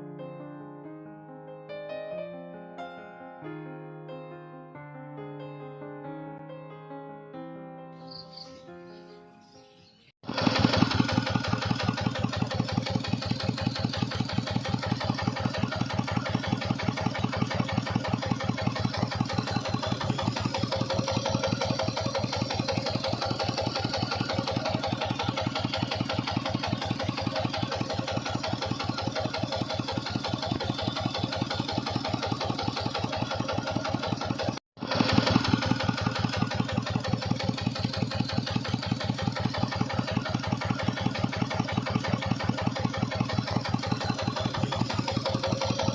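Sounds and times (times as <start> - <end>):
tractor engine thumping: 10.3 - 45.9.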